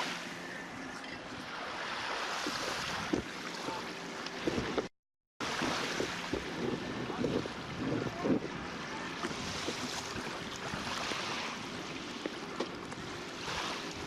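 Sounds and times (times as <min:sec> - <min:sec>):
water rushing along boat hull: 0:00.0 - 0:14.0
wind buffeting microphone: 0:02.4 - 0:03.4, 0:04.4 - 0:04.9, 0:05.5 - 0:11.9.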